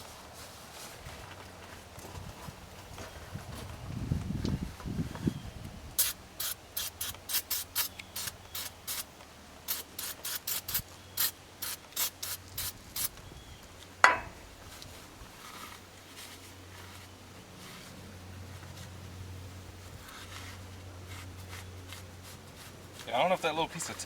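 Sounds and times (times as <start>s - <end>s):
sharp clink: 14.0s - 14.4s.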